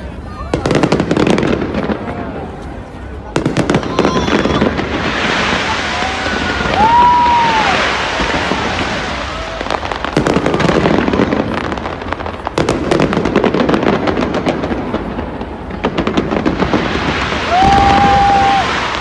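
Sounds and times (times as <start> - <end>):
fireworks booming and crackling: 0.0 - 19.0.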